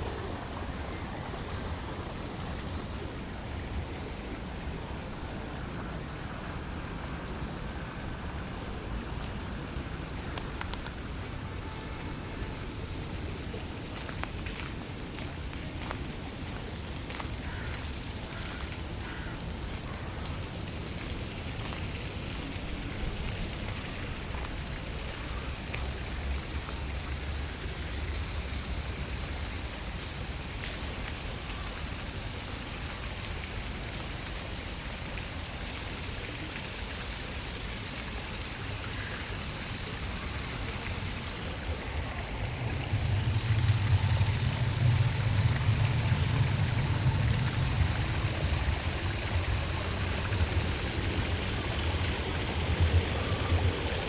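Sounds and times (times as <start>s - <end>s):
running water rushing: 0.0s - 54.0s
low rumble: 40.5s - 53.9s.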